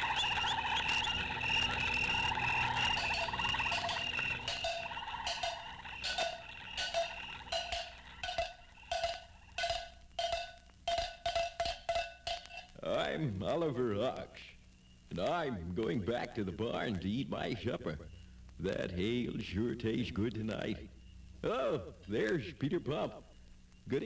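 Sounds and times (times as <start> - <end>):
insect trills: 0.0 - 13.2
frogs croaking: 0.0 - 15.5
wood-block knocks: 2.7 - 12.7.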